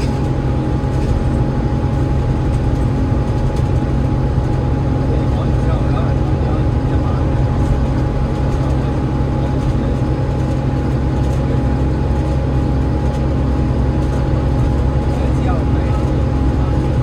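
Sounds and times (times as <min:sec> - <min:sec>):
bus diesel engine rumble: 0:00.0 - 0:17.0.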